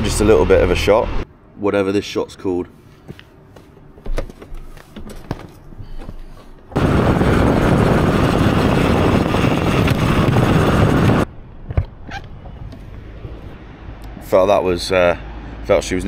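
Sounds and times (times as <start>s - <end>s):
wind buffeting microphone: 6.7s - 13.4s.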